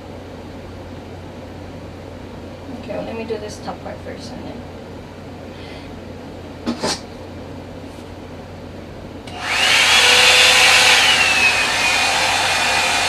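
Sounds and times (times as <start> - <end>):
hot-air brush dryer blowing: 9.3 - 13.0.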